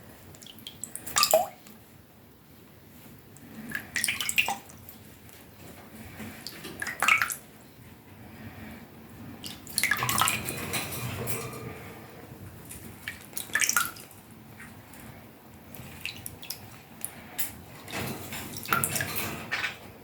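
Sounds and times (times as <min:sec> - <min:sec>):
water splashing and dripping: 0:00.3 - 0:01.8, 0:03.5 - 0:05.0, 0:06.3 - 0:07.5, 0:09.4 - 0:11.6, 0:12.6 - 0:15.1, 0:15.7 - 0:19.8.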